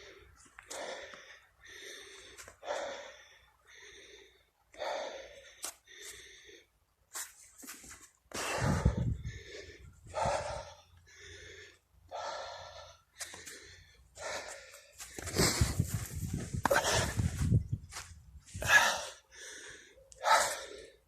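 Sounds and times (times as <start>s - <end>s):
person breathing heavily: 0.0s - 6.9s, 8.3s - 21.0s
wind rumble on microphone: 8.5s - 10.7s, 15.2s - 18.7s.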